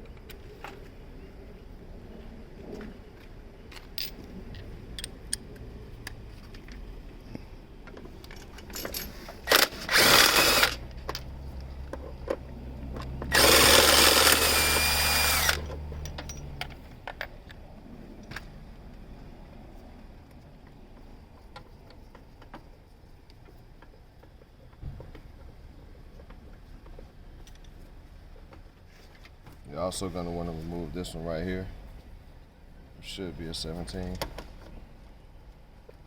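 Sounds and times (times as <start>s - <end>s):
handheld power tool running: 9.5s - 10.8s, 13.3s - 15.7s.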